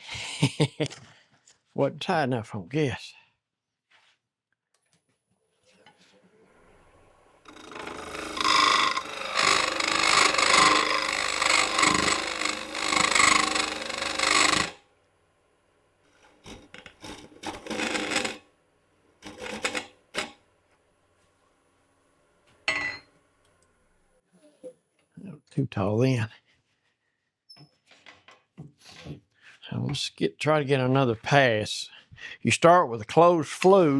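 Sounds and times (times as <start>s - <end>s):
bowl gouge cutting spinning wood: 6.6s - 14.8s, 16.2s - 18.5s, 19.2s - 20.4s.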